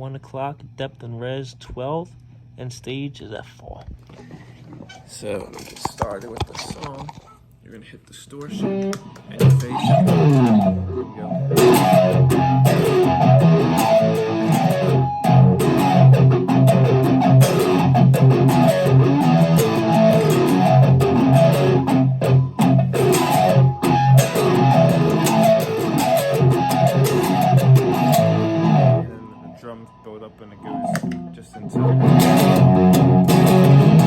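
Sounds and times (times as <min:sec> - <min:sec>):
distorted electric guitar riff: 0:08.5 - 0:29.7, 0:30.6 - 0:34.0.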